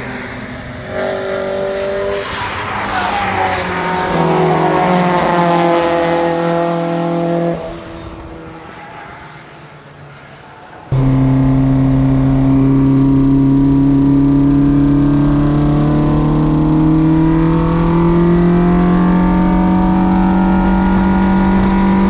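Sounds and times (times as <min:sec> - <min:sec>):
race car engine revving: 0:10.9 - 0:22.0.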